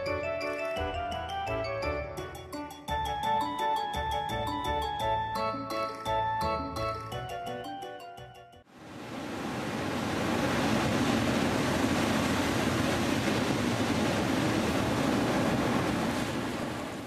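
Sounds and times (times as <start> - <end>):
steady rushing noise: 8.8 - 17.0.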